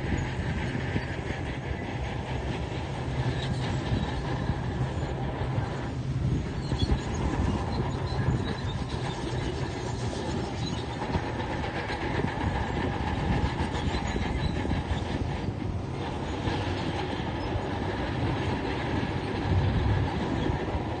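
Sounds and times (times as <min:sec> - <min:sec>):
steel crawler tracks clanking: 0:00.0 - 0:21.0.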